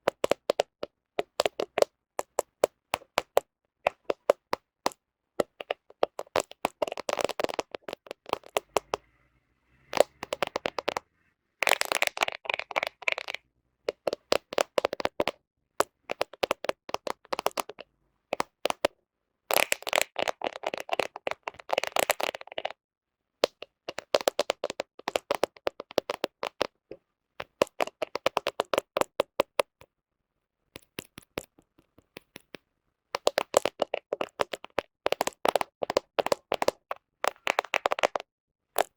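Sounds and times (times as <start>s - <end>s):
fingernails tapping on phone lens: 0.0s - 9.1s, 9.9s - 11.0s, 11.8s - 18.9s, 27.4s - 29.8s.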